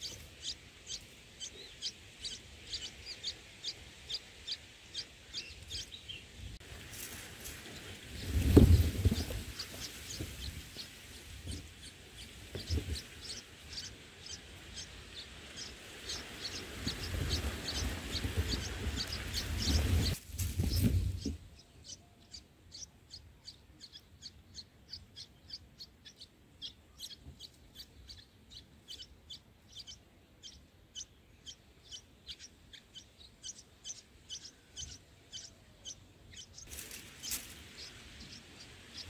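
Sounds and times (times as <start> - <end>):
nestlings begging chirps: 0.0 - 39.0
rustling: 6.6 - 13.3, 16.8 - 21.5, 36.6 - 38.2.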